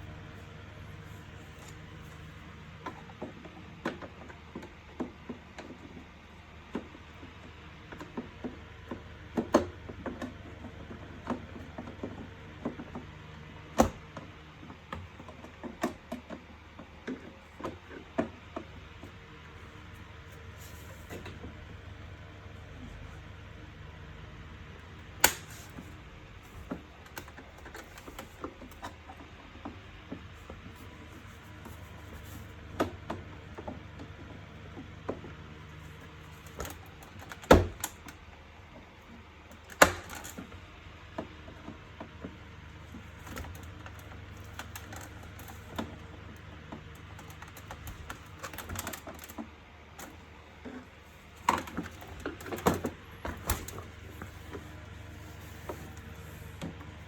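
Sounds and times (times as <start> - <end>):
low background hum: 0.0 - 57.0
plastic parts clicking and knocking: 25.2 - 30.7, 36.0 - 40.6, 41.2 - 54.7.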